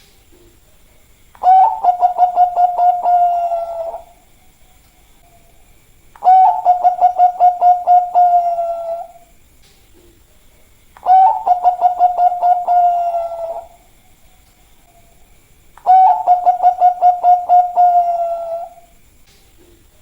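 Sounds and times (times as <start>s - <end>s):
dove cooing: 1.4s - 4.2s, 6.2s - 9.3s, 11.0s - 14.0s, 15.8s - 18.9s.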